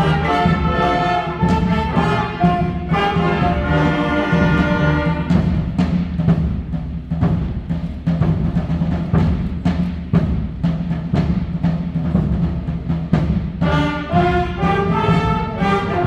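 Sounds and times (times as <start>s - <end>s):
concert band playing: 0.0s - 6.7s, 12.2s - 16.0s
drum and timpani strikes: 0.0s - 16.0s.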